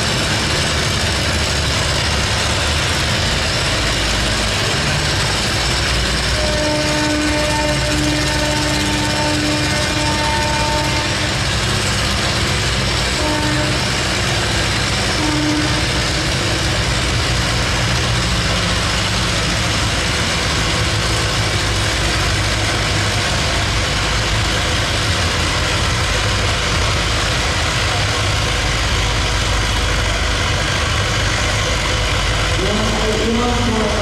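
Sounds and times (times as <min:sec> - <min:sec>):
tractor engine under load: 0:00.0 - 0:34.0.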